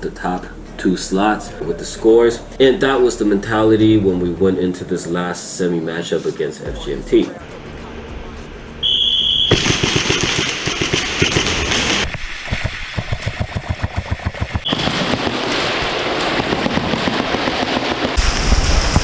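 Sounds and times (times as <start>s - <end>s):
high steady tone: 8.8s - 9.6s
airsoft guns rattling: 9.5s - 12.1s
sharp regular airsoft pops: 9.5s - 15.5s.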